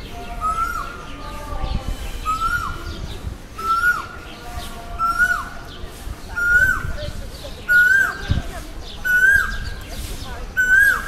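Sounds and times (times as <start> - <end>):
bird whistled call: 1.9 - 4.2, 5.0 - 5.6, 10.6 - 11.0.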